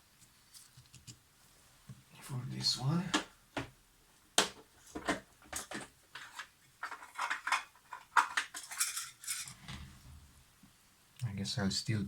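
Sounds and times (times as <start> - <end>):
small metal parts rattling: 5.5 - 9.6.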